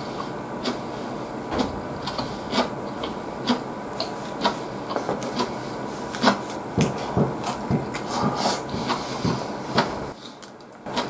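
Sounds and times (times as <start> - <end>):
chewing crisp food: 3.4 - 8.2, 9.8 - 11.0.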